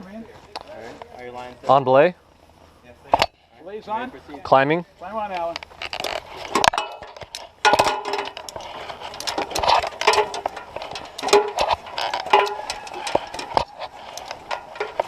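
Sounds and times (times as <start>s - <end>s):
metal carabiners clinking: 5.3s - 15.0s.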